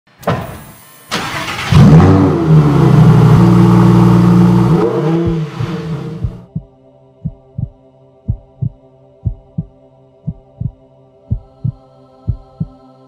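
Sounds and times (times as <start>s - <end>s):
sports car engine starting and revving: 1.1s - 6.5s
deep heartbeat-like thumps: 6.2s - 12.8s.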